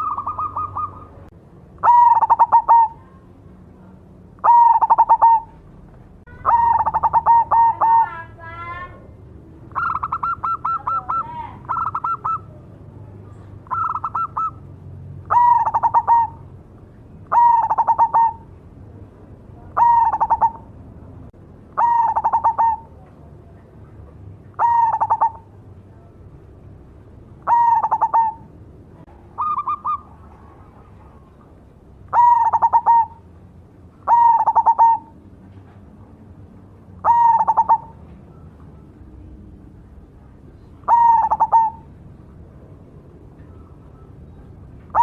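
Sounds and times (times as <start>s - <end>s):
dove cooing: 0.0s - 3.2s, 4.4s - 5.7s, 6.3s - 8.4s, 9.7s - 12.6s, 13.6s - 14.6s, 15.2s - 16.5s, 17.2s - 18.5s, 19.7s - 20.7s, 21.8s - 23.1s, 24.5s - 25.6s, 27.4s - 28.6s, 29.3s - 31.5s, 32.1s - 33.3s, 34.0s - 35.2s, 37.0s - 38.8s, 40.6s - 41.9s, 43.4s - 45.0s.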